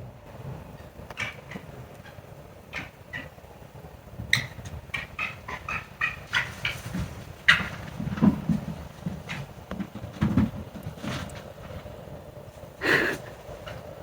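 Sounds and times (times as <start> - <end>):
foxes yelping: 0.8 - 3.4, 4.3 - 6.8.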